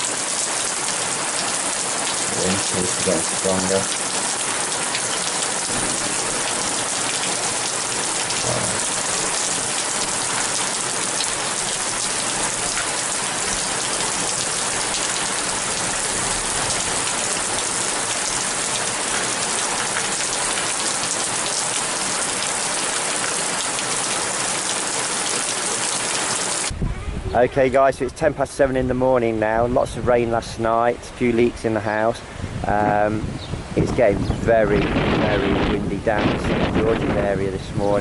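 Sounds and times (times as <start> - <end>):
heavy rain pouring: 0.0 - 38.0.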